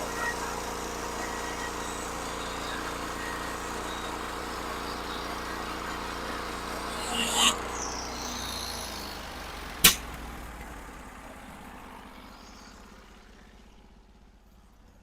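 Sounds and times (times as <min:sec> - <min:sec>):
sawmill engine running: 0:00.0 - 0:08.9
sharp click: 0:09.8 - 0:10.1.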